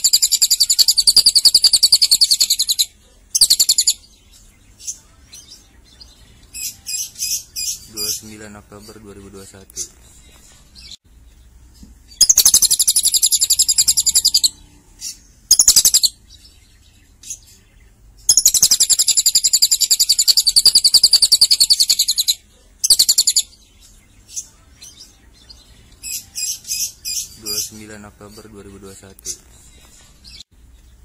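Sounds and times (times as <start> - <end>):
lovebird chattering trill: 0.0 - 4.0, 12.1 - 16.2, 18.3 - 23.6.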